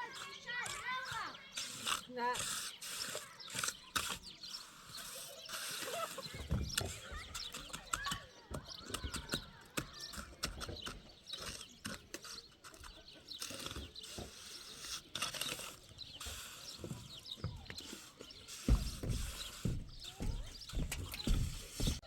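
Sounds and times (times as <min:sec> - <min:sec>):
birds chirping: 0:00.0 - 0:22.0
scattered clicks and knocks: 0:06.3 - 0:14.5, 0:16.8 - 0:22.0.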